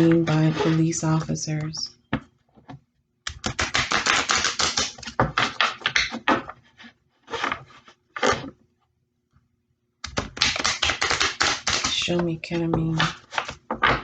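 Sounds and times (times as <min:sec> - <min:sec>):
cards being shuffled: 0:03.3 - 0:06.6, 0:10.1 - 0:14.0.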